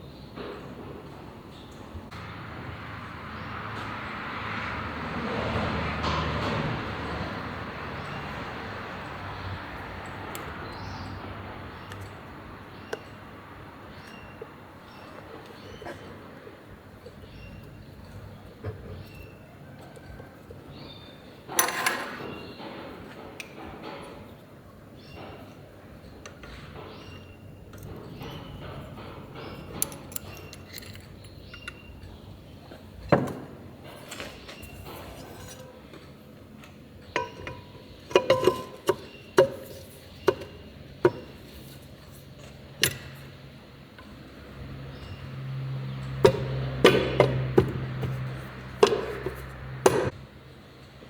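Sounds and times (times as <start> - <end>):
metal tools clinking and knocking: 21.5 - 22.4, 26.2 - 44.2, 46.0 - 50.2.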